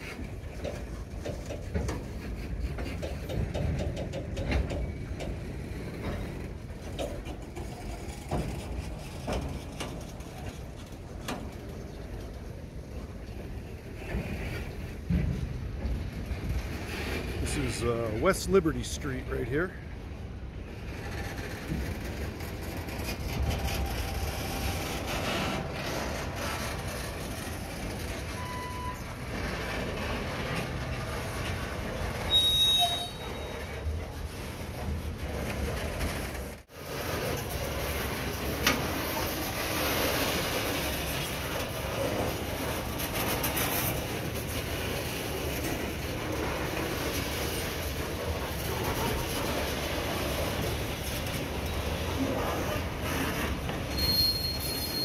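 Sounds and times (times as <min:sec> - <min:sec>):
wheels clicking and knocking: 0:00.0 - 0:19.0, 0:20.2 - 0:55.0
train wheels rumbling on rails: 0:00.0 - 0:55.0.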